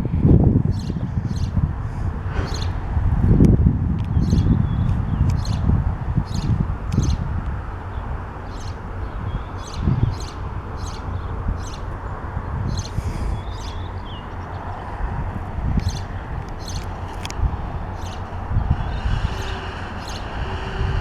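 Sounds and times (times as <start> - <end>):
small birds chirping: 0.7 - 1.6, 2.3 - 2.8, 4.0 - 7.3, 7.9 - 15.0, 15.6 - 21.0
diesel locomotive rumbling: 5.6 - 21.0.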